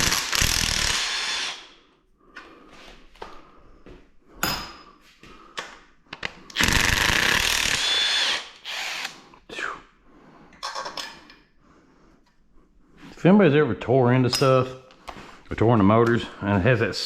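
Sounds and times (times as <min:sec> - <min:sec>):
handheld power tool running: 0:00.0 - 0:01.6, 0:06.6 - 0:09.2.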